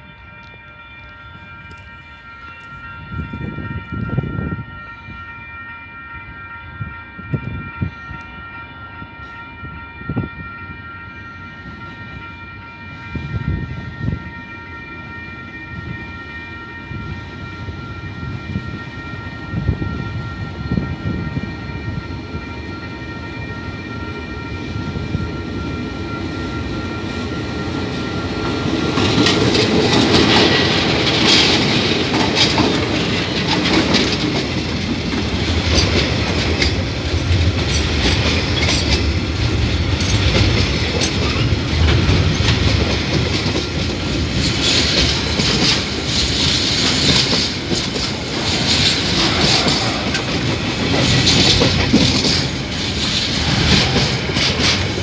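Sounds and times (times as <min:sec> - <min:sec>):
diesel locomotive whine: 0:00.0 - 0:55.0
wheels clacking over rail joints: 0:28.4 - 0:55.0.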